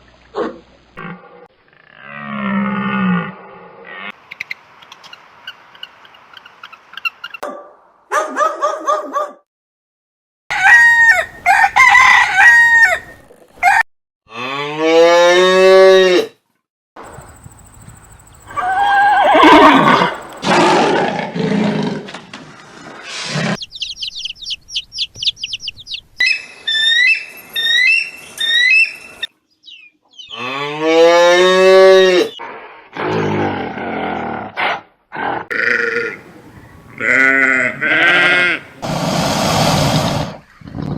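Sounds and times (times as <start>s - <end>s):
high chirps: 17.1s - 20.4s
animal calls rising and falling: 18.4s - 21.1s.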